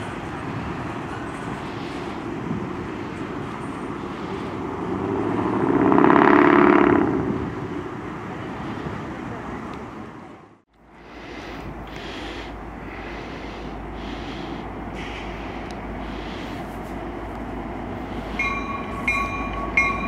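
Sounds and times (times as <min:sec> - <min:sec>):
freight train rolling on rails: 0:00.0 - 0:20.0
vehicle engine passing: 0:04.6 - 0:09.7.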